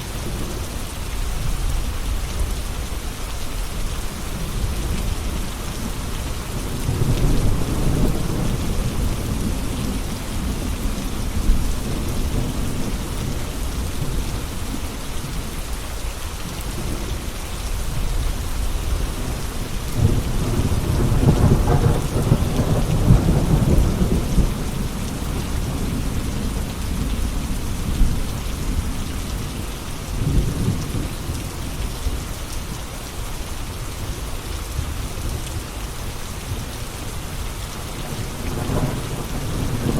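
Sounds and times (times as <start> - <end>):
steady rain falling: 0.0 - 39.9
thunder rumbling: 5.6 - 14.8, 17.8 - 31.1, 38.0 - 39.9.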